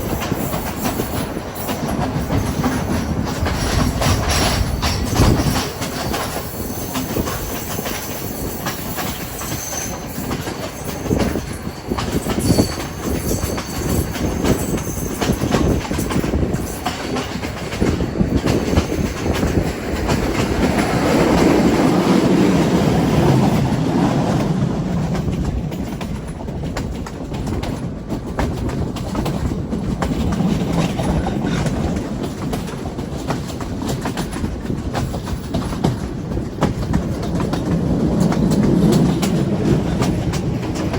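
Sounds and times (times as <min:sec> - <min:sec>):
train rumbling along rails: 0:00.0 - 0:40.9
wheels clickety-clack over track: 0:00.0 - 0:40.9
high wheel squeal: 0:08.0 - 0:15.7.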